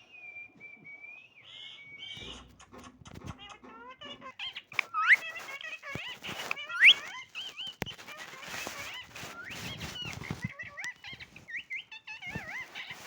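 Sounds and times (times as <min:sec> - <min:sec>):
parrot chirping and squawking: 0:03.3 - 0:13.0.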